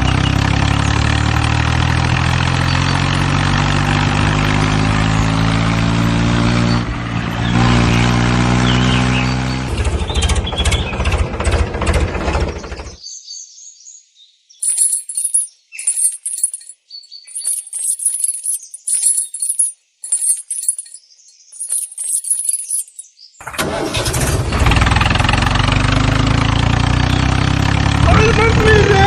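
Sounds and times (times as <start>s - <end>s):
tractor engine running: 0.0s - 13.0s, 21.6s - 29.0s.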